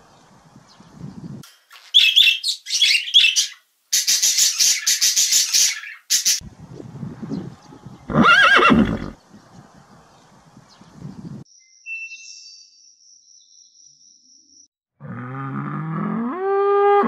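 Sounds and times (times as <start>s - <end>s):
horse whinnying: 8.1s - 9.2s.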